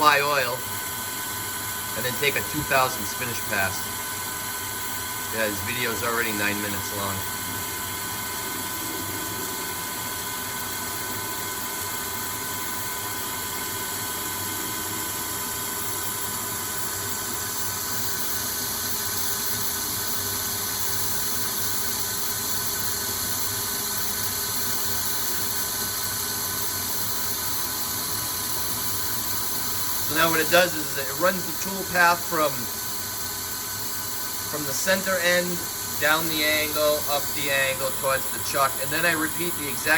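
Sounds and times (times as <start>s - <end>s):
lathe machine whir: 0.0s - 39.9s
tool cutting hiss: 2.0s - 7.3s, 16.8s - 39.9s.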